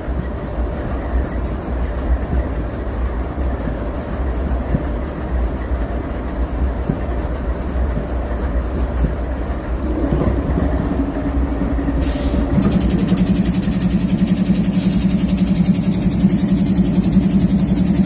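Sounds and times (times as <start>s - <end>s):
diesel locomotive engine rumble: 0.0s - 18.0s
fast pulsing hiss: 12.0s - 18.0s.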